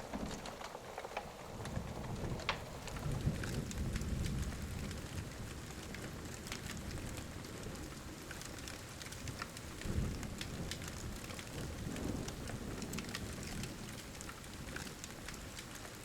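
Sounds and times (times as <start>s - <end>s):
pouring rain: 0.0s - 16.0s
sharp crackles: 0.0s - 16.0s
distant thunder rumble: 1.4s - 7.9s, 9.7s - 15.6s.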